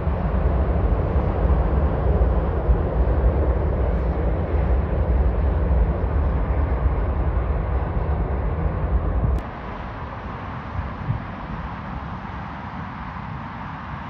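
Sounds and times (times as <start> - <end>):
jet engine low rumble: 0.0 - 14.0.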